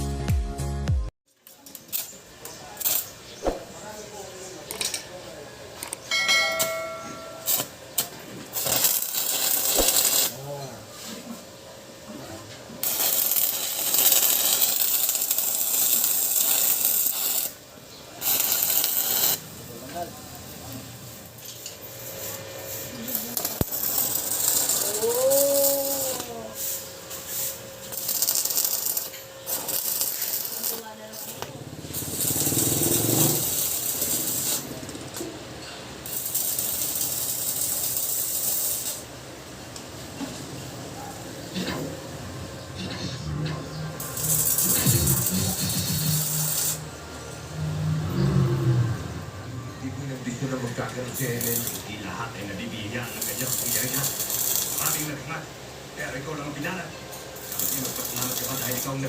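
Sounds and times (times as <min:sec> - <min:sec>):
welding arc crackling: 0:01.4 - 0:03.6, 0:07.4 - 0:10.4, 0:12.8 - 0:35.4, 0:36.0 - 0:39.8, 0:44.0 - 0:47.9, 0:50.4 - 0:55.4, 0:56.6 - 0:59.0.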